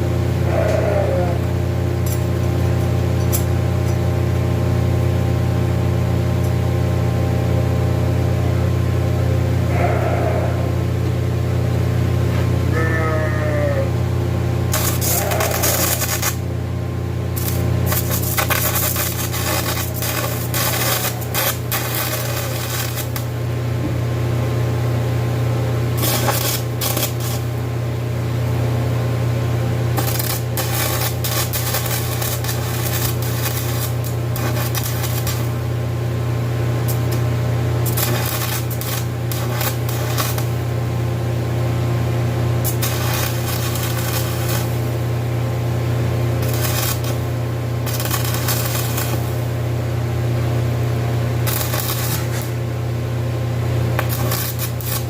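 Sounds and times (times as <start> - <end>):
harsh metal grinding: 14.7 - 16.4, 17.4 - 23.2
electric grinder humming: 14.7 - 16.5, 17.3 - 23.5, 25.9 - 27.6, 29.9 - 35.7, 36.9 - 40.6, 42.6 - 45.0, 46.2 - 49.6, 51.4 - 52.6, 53.9 - 55.0.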